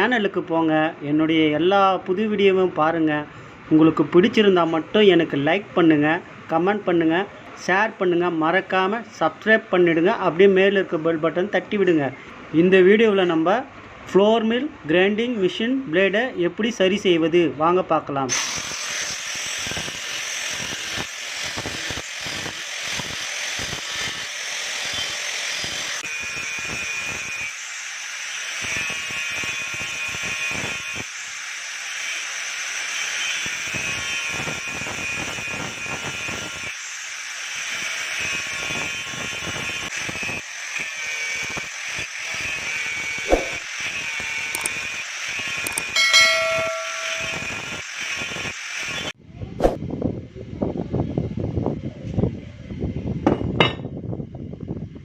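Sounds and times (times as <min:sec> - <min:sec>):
metal grinding blade: 0:44.6 - 0:44.8, 0:45.7 - 0:47.8
sharp click: 0:44.6 - 0:44.8, 0:45.7 - 0:47.6
brief ringing tone: 0:45.9 - 0:47.7.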